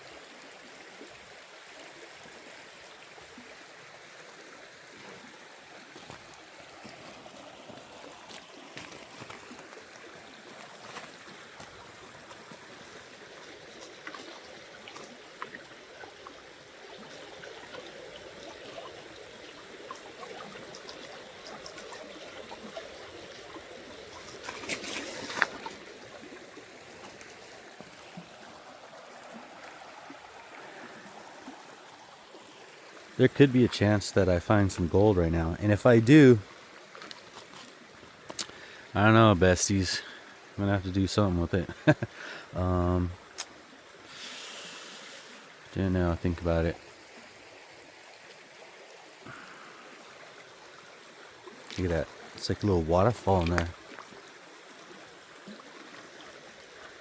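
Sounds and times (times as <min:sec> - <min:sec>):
creek trickling and babbling: 0:00.0 - 0:57.0
water splash or clatter: 0:24.1 - 0:25.9, 0:51.6 - 0:54.1.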